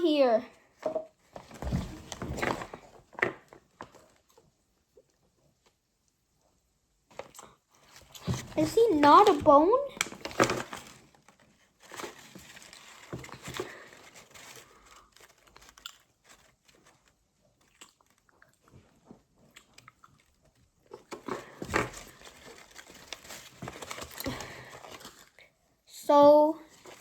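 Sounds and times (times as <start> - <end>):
plastic packaging crinkling: 7.1 - 18.8, 19.4 - 25.4
small clicks and crackles: 7.1 - 25.6.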